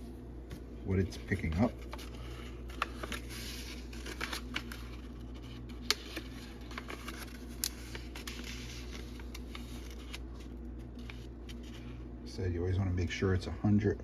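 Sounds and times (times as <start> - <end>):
low steady hum: 0.0 - 14.0
paper rustling and crackling: 0.9 - 12.0.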